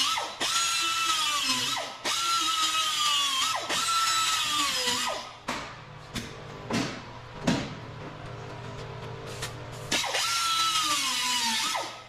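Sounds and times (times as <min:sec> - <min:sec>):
power tool motor bursts: 0:09.9 - 0:12.0.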